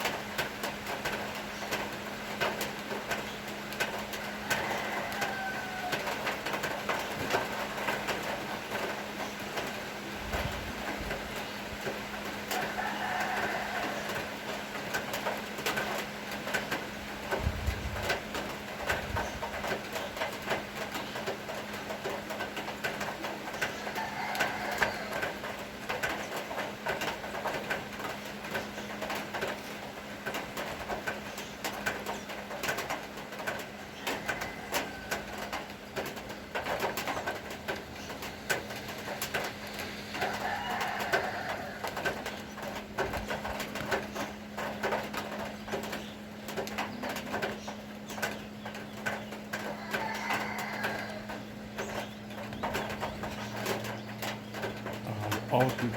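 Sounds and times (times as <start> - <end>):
rain dripping and tapping: 0.0 - 55.9
bird calling: 45.5 - 55.9.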